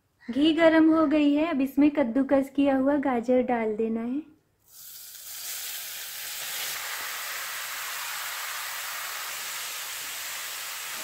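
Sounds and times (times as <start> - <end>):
carrots sizzling in hot ghee: 4.6 - 11.0.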